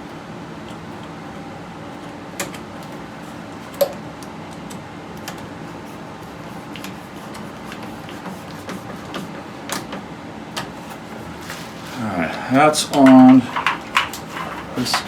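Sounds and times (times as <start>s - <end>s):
steady background hum: 0.0s - 15.0s
small clicks and knocks of parts: 12.9s - 15.0s.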